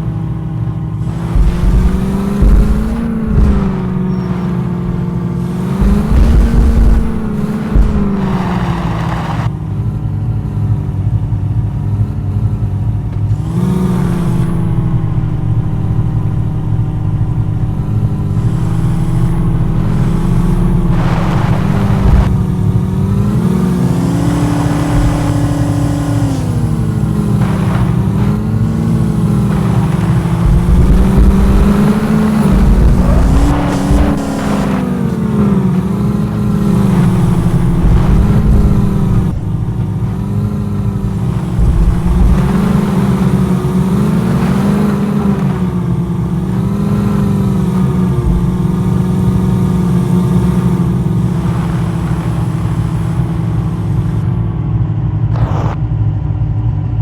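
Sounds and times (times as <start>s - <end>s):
jeep engine revving: 0.0s - 56.0s.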